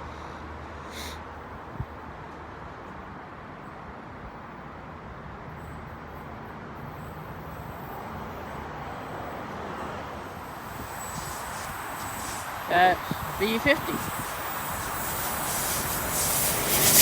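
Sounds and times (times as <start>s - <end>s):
electric train rumbling: 4.2s - 17.0s
faint high whine: 8.4s - 17.0s.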